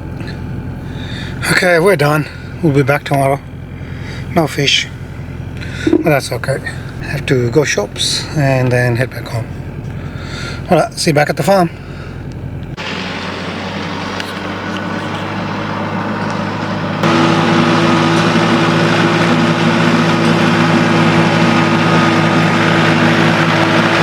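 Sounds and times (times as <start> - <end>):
vehicle engine hum: 2.0 - 6.0, 11.7 - 24.0
road noise: 12.8 - 18.9.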